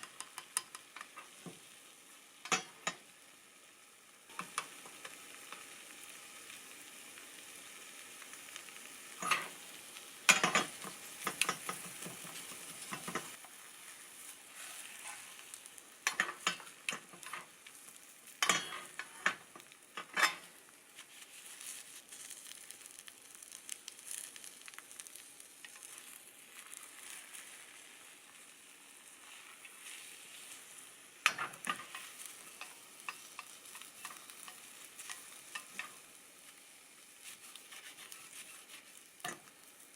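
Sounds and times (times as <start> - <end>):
food sizzling in a frying pan: 0.0 - 39.9
utensil scraping and tapping pan: 9.2 - 9.6, 10.3 - 13.4.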